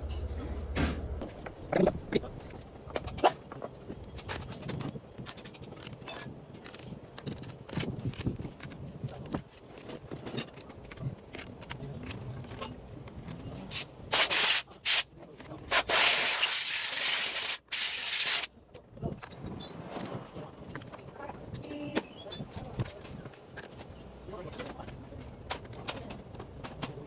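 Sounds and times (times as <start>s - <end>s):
loud hissing spray: 13.7s - 15.0s, 15.7s - 18.5s.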